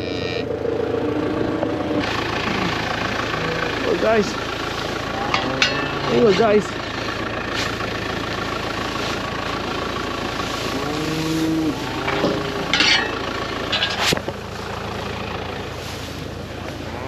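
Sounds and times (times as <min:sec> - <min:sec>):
cow mooing: 0:00.0 - 0:04.3, 0:04.9 - 0:06.7, 0:10.5 - 0:13.2, 0:16.7 - 0:17.0
tractor engine running: 0:00.0 - 0:17.0.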